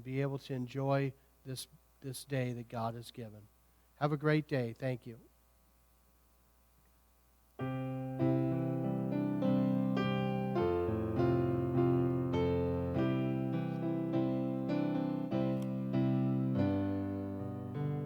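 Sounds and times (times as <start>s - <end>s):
solo piano music: 7.6s - 18.0s.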